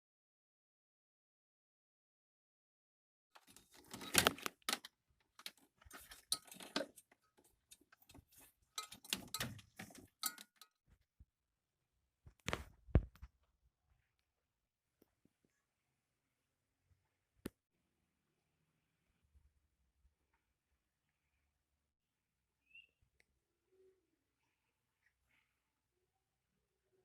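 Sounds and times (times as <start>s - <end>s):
metal tools clinking and rattling: 3.4s - 10.7s.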